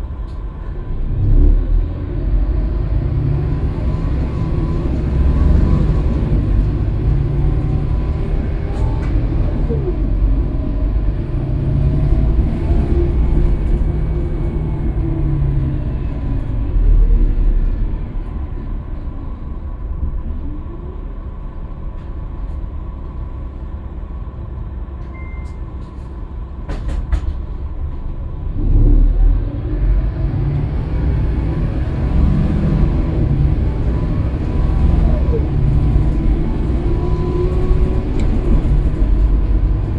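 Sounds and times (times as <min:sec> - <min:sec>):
bus engine rumbling: 0:00.0 - 0:39.9
short beep: 0:25.1 - 0:25.6.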